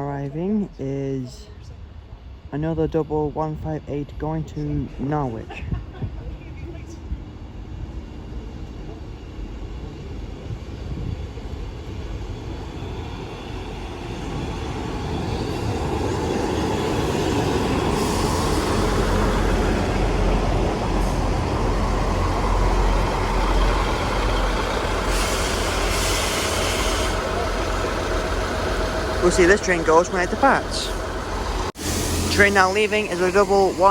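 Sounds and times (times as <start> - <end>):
train engines and wheels rumbling: 0.0 - 33.9
air brakes hissing: 25.0 - 28.5.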